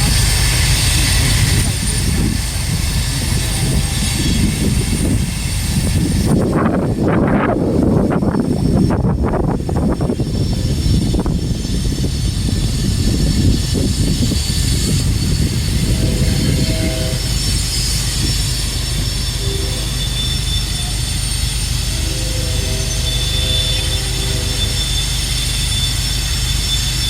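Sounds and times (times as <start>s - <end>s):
train wheels rumbling on rail: 0.0s - 27.0s
high-pitched wheel squeal: 9.8s - 27.0s
low wheel squealing: 13.6s - 27.0s.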